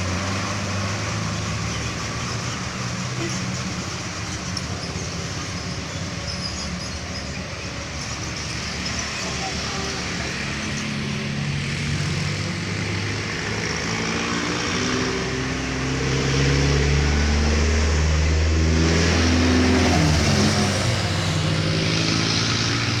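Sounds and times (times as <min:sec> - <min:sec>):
heavy diesel engine running: 0:00.0 - 0:14.8.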